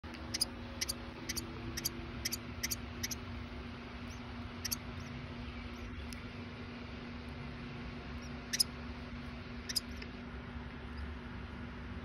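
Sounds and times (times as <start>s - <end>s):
low steady hum: 0.0s - 12.0s
bird chirping sharply: 0.3s - 3.2s.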